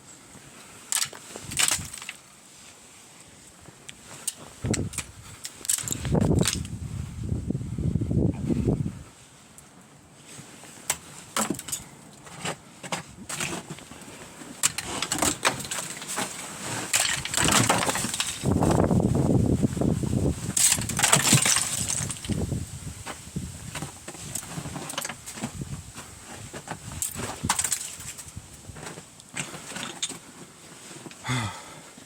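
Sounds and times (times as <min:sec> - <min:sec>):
ice cracking and clinking: 0:00.9 - 0:02.2, 0:04.2 - 0:06.7, 0:10.9 - 0:11.9, 0:14.6 - 0:18.5, 0:20.6 - 0:22.4, 0:24.1 - 0:25.5, 0:26.6 - 0:30.3
ice crashing: 0:00.9 - 0:02.2, 0:14.6 - 0:18.8, 0:20.2 - 0:22.4, 0:26.3 - 0:30.2.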